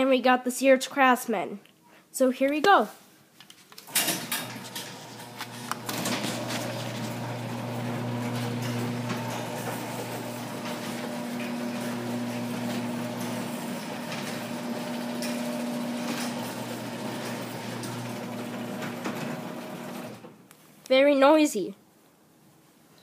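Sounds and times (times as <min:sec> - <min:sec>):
door rattling and clicking: 0:03.9 - 0:20.4
garage door opener motor hum: 0:03.9 - 0:20.4.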